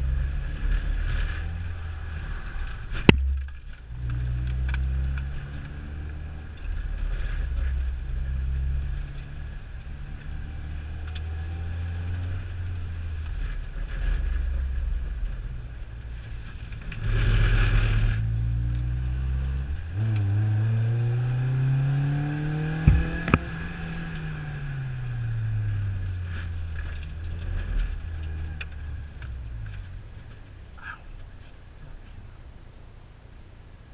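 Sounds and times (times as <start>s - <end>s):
vehicle engine running: 0.0s - 33.9s
sharp knocks: 22.8s - 23.5s.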